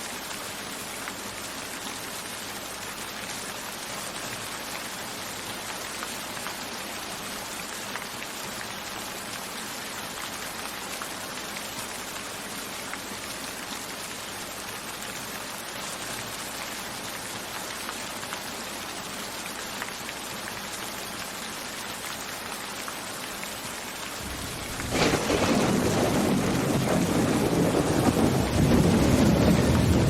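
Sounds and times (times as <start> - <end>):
rainfall hissing: 0.0 - 30.0
raindrops ticking: 19.8 - 30.0
thunder clap: 24.2 - 30.0.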